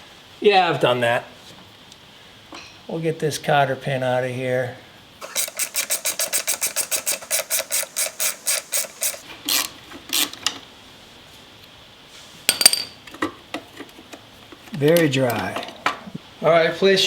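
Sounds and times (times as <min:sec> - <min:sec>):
hand tool clicking: 0:05.2 - 0:10.6.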